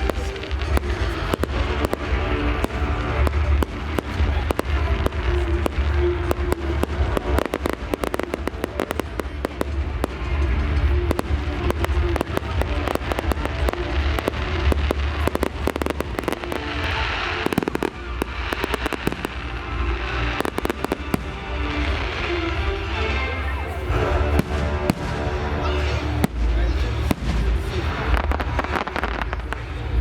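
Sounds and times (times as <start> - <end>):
fireworks bangs and crackles: 0.0 - 30.0
music with low bass: 0.0 - 30.0.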